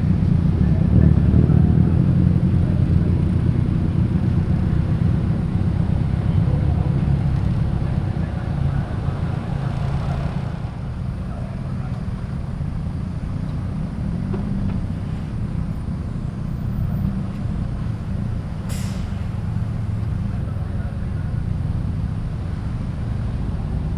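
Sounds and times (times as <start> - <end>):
car engine rumbling: 0.0 - 23.9.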